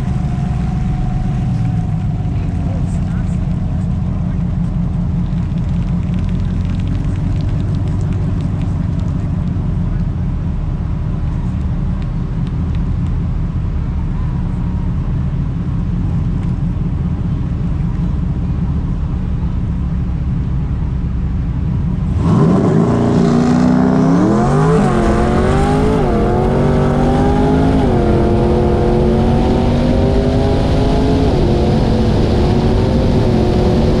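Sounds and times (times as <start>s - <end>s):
car engine rumbling: 0.0s - 34.0s
car accelerating through upshifts: 22.0s - 34.0s.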